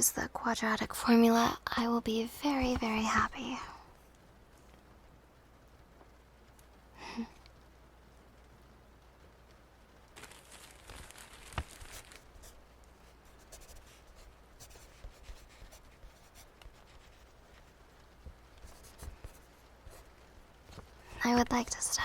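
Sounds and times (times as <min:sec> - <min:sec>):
pen scratching on paper: 0:13.3 - 0:17.7, 0:18.6 - 0:20.1.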